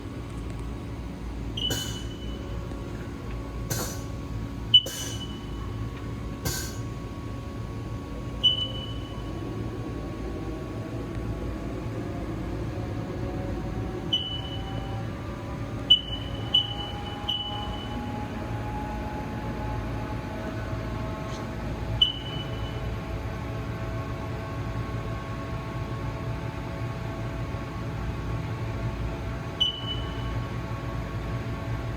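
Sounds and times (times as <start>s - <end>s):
faint motor whines: 0.0s - 31.9s
short high beeps: 1.6s - 2.5s, 4.7s - 5.6s, 8.4s - 9.3s, 15.9s - 18.0s.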